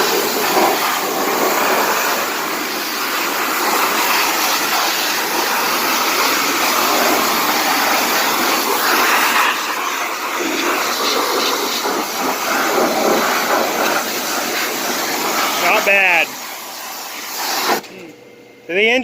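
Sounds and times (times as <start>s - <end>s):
pressure washer spraying water: 0.0s - 17.9s.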